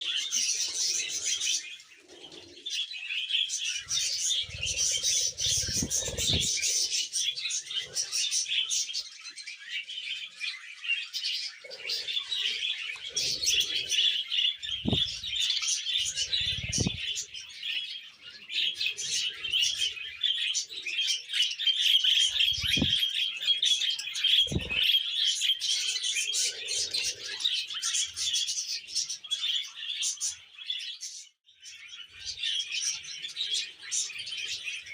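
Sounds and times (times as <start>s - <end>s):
budgerigar chattering: 4.0s - 6.8s, 14.7s - 17.2s, 22.2s - 23.0s, 24.4s - 25.0s.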